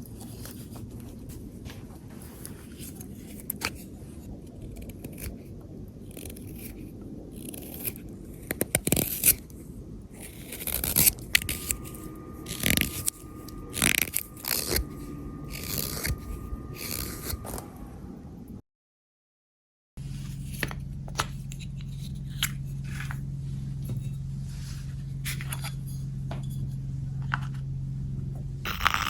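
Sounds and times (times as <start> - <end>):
knife scraping through wood: 10.1 - 17.6.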